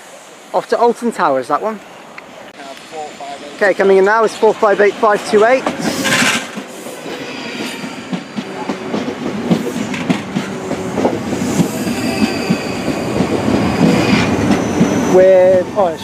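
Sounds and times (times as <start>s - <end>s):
train wheels clicking over rail joints: 5.1s - 15.9s.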